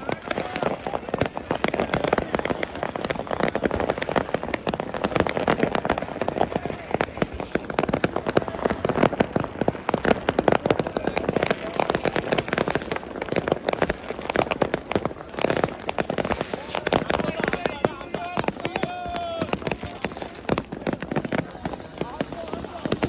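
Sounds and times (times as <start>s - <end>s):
firecrackers crackling: 0.0s - 23.0s.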